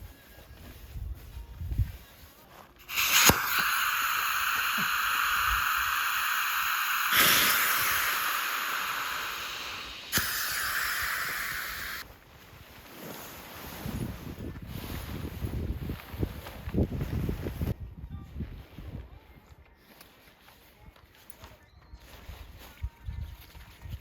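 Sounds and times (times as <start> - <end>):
rushing air hiss: 2.8 - 12.0
sharp click: 2.9 - 5.6.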